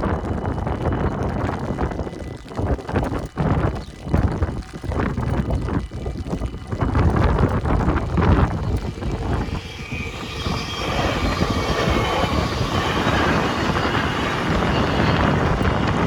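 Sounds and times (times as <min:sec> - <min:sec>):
wind rumble on microphone: 0:00.0 - 0:16.0
train wheels on rails: 0:07.4 - 0:16.0.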